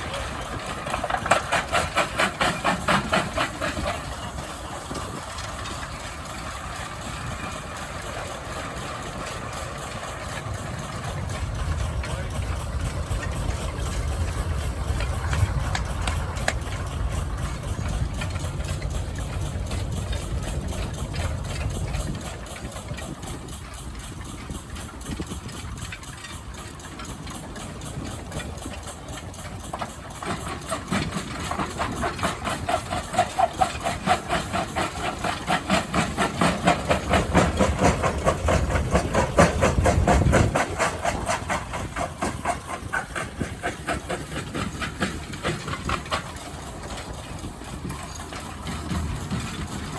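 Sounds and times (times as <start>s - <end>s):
engine exhaust beat: 0.0s - 49.9s
low rumble: 3.9s - 23.8s.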